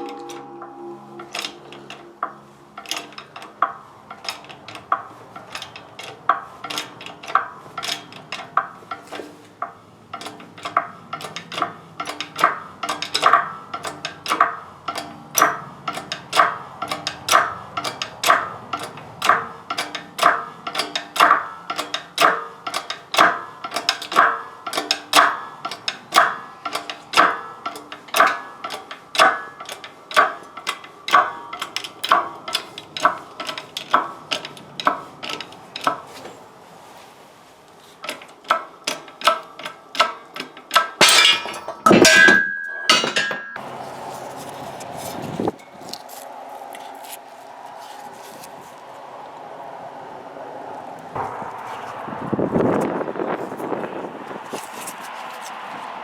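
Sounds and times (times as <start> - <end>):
hammer striking steel: 0.0 - 8.1, 9.0 - 33.2, 40.8 - 43.6.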